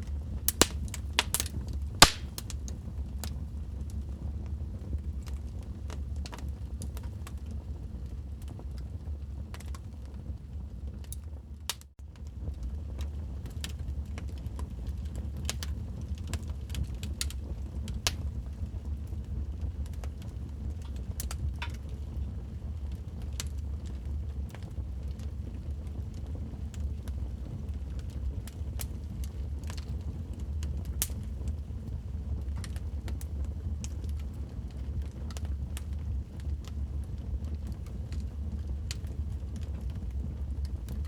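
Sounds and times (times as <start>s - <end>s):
wood fire crackling: 0.0s - 41.0s.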